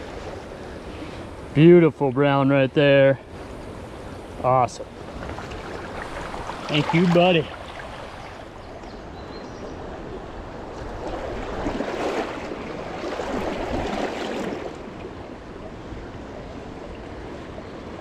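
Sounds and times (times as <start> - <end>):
river water rushing: 3.2 - 18.0.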